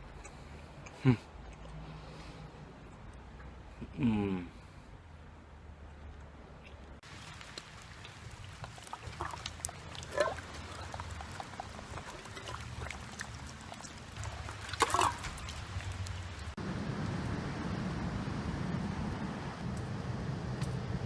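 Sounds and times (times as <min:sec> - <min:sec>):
freezing rain pattering on roof: 0:07.0 - 0:17.9
storm wind rumble: 0:07.1 - 0:21.0.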